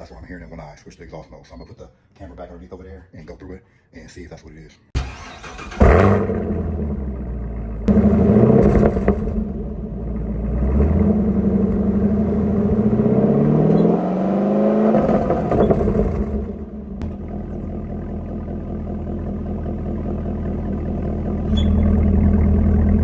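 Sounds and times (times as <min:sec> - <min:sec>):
car engine and exhaust revving: 0:05.0 - 0:23.0.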